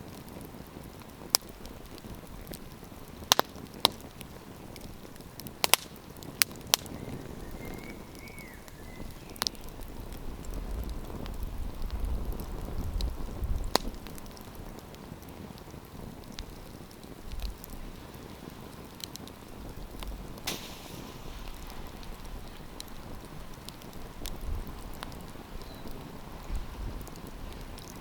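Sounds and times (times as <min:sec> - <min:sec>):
campfire crackling: 0:00.0 - 0:28.0.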